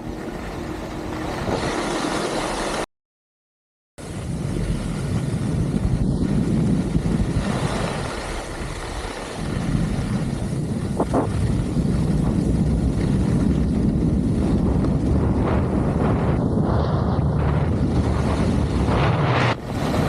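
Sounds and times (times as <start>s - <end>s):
wind buffeting microphone: 4.0s - 20.0s.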